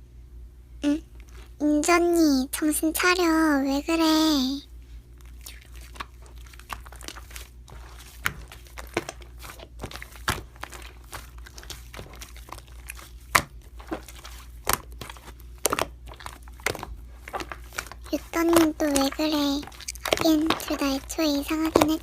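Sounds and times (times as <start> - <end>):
slime squished by hand: 5.1 - 22.0.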